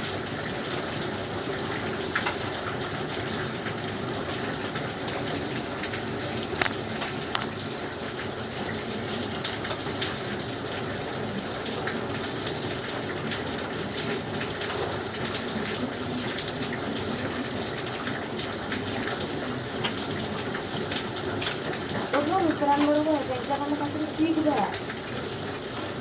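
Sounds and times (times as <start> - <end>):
water drips: 11.8 - 26.0
water rushing: 21.0 - 26.0.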